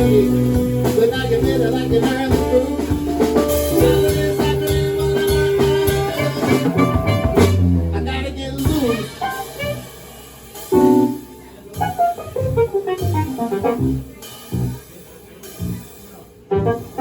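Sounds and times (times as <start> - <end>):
live band with guitar and drums: 0.0 - 17.0.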